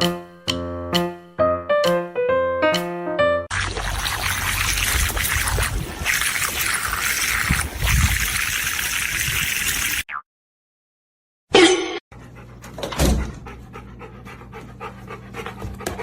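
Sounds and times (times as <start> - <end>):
running water splashing: 3.5 - 10.0.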